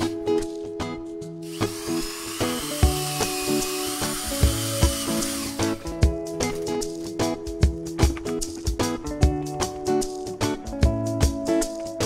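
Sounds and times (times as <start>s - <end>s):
background music with steady beat: 0.0s - 12.0s
cordless drill motor whining: 1.4s - 5.8s.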